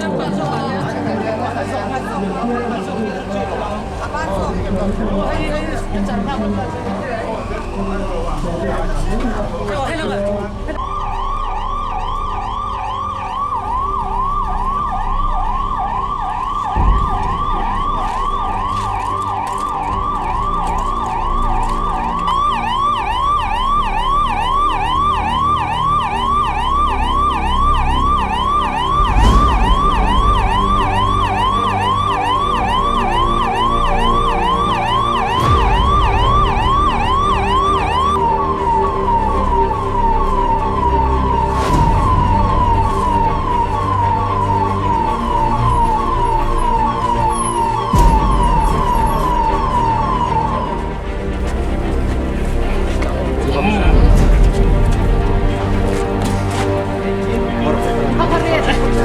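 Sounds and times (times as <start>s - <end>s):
siren yelping: 0.0s - 59.0s.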